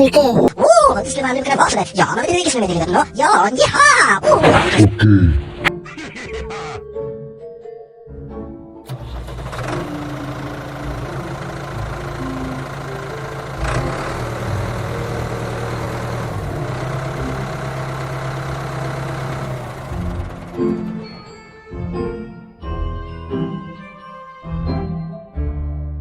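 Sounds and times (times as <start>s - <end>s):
tractor engine running: 8.9s - 21.4s.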